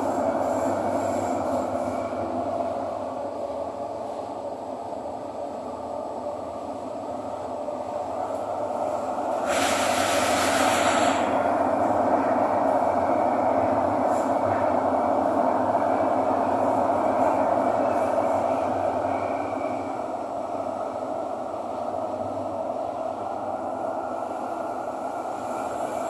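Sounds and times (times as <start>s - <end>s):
train wheels and motors rumbling: 0.0s - 26.0s
brief high hiss: 9.4s - 11.3s.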